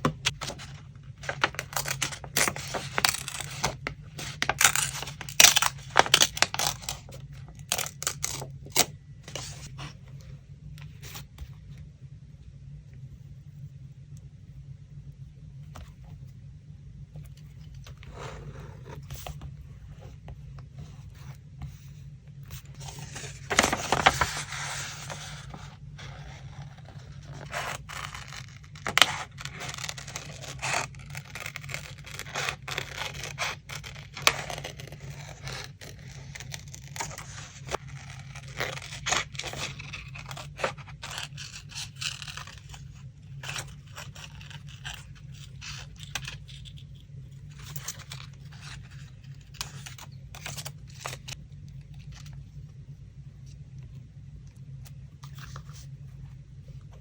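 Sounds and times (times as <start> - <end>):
low steady hum: 0.0 - 57.0
paper scraping and tearing: 0.1 - 9.8, 22.6 - 51.4.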